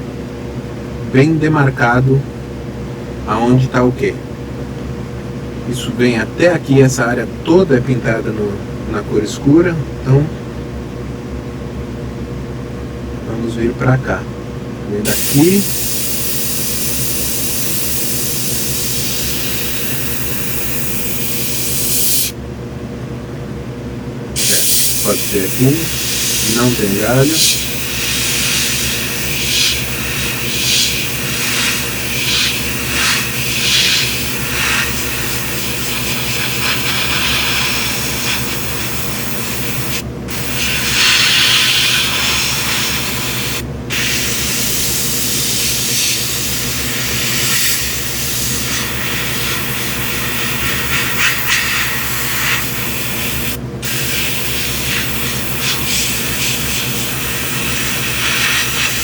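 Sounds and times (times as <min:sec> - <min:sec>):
steady low hum: 0:00.0 - 0:59.0
airbrush spraying air hiss: 0:15.1 - 0:22.4, 0:24.4 - 0:59.0.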